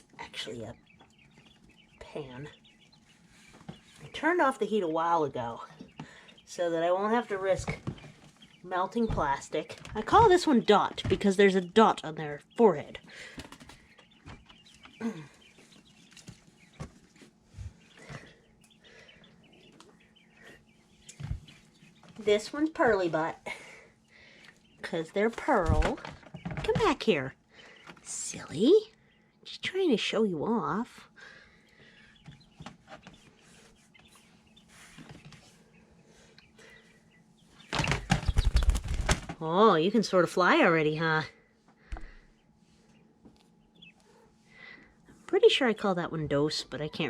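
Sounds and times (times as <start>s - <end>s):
chicks peeping: 0.0s - 47.0s
bird flapping wings: 13.2s - 14.6s, 37.6s - 39.4s.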